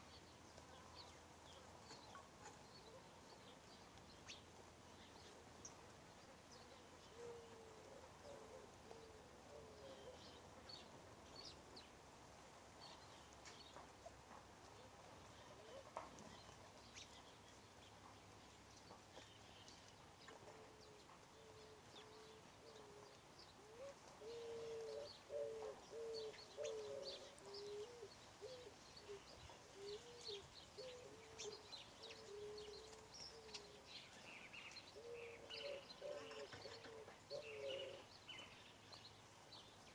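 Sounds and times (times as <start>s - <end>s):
small birds chirping: 0.0s - 12.0s, 12.7s - 39.9s
dove cooing: 7.1s - 10.3s, 15.4s - 16.2s, 20.5s - 33.8s, 34.9s - 38.1s.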